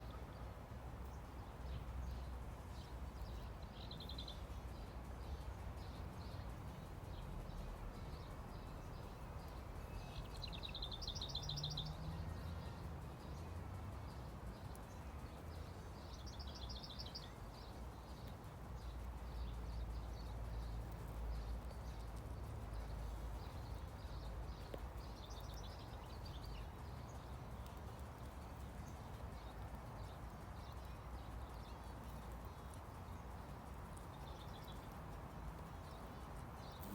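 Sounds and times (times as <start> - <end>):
songbird trilling: 8.5 - 12.1, 16.0 - 22.2, 22.8 - 27.6.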